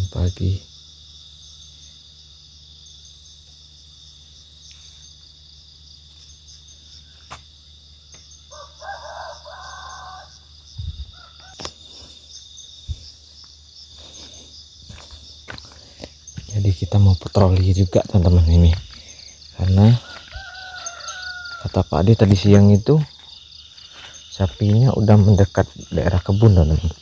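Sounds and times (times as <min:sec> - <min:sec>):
high insect drone: 0:00.0 - 0:27.0
rooster crowing: 0:08.5 - 0:11.7, 0:19.8 - 0:22.0.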